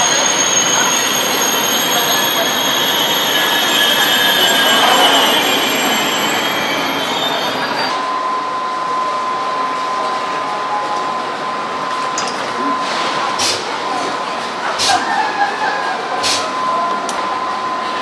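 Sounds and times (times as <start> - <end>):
high wheel squeal: 0.0 - 8.0
train running: 0.0 - 8.2
steady high tone: 0.0 - 9.8.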